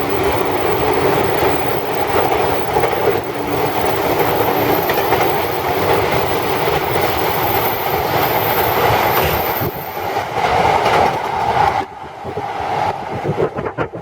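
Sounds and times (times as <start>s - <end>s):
train wheels rolling on rails: 0.0s - 14.0s.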